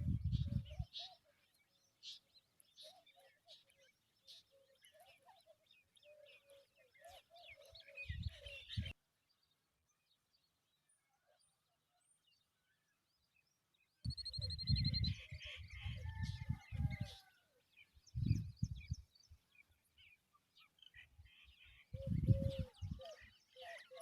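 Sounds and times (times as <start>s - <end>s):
birds chirping and calling: 0.0s - 9.0s, 14.1s - 24.0s.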